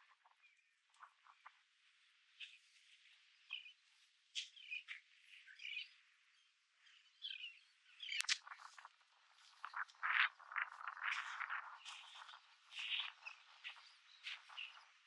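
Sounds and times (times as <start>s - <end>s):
birds chirping: 9.6s - 15.0s.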